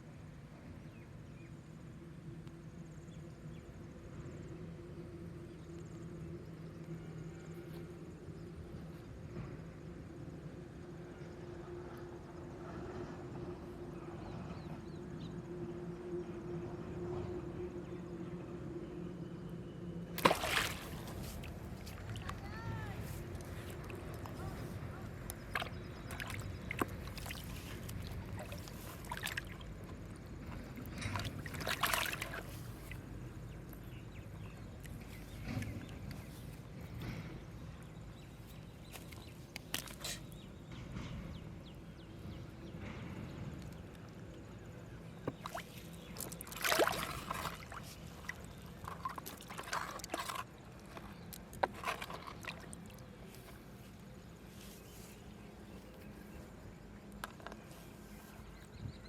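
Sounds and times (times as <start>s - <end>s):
water sloshing and splashing: 20.1s - 40.4s, 45.1s - 58.8s
short sharp splashes or knocks: 20.2s - 22.4s, 31.0s - 32.5s, 45.3s - 50.4s.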